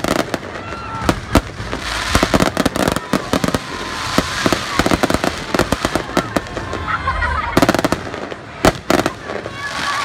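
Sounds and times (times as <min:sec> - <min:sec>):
fireworks bangs and crackles: 0:00.0 - 0:10.0
low rumble of fireworks show: 0:00.0 - 0:10.0.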